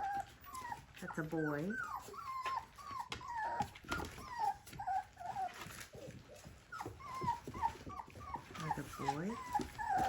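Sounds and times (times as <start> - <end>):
puppies whining: 0.0 - 10.0.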